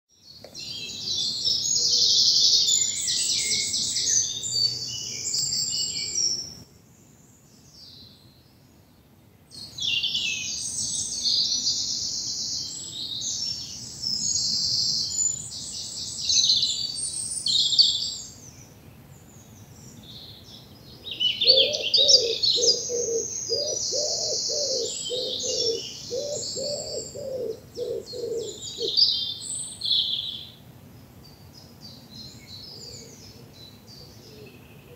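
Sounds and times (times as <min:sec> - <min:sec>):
songbirds singing: 0:00.1 - 0:34.9
low bird call: 0:21.1 - 0:30.5.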